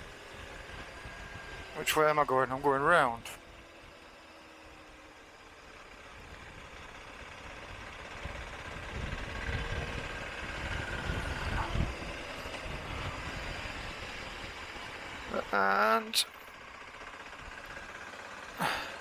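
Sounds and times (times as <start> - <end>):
wind and road noise: 0.0 - 19.0
motorcycle engine running: 3.4 - 15.8, 16.4 - 19.0.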